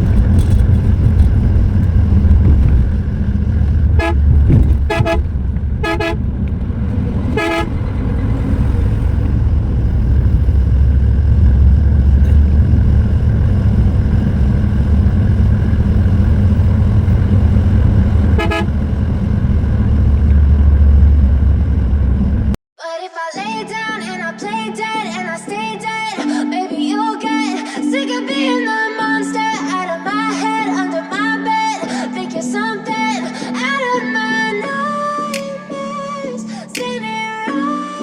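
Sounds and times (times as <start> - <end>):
coach diesel engine droning: 0.0 - 22.6
road noise: 0.0 - 22.6
horn toots: 2.5 - 9.4, 16.4 - 22.5.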